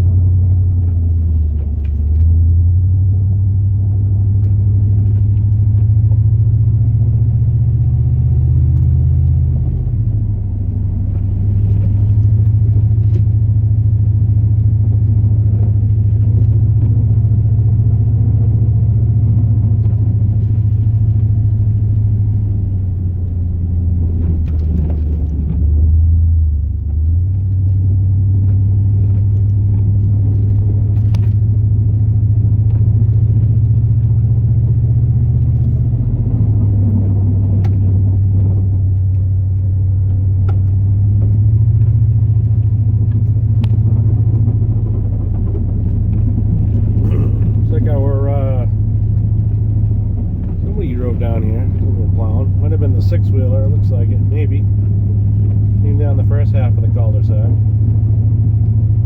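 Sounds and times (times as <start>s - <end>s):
truck engine droning: 0.0s - 59.0s.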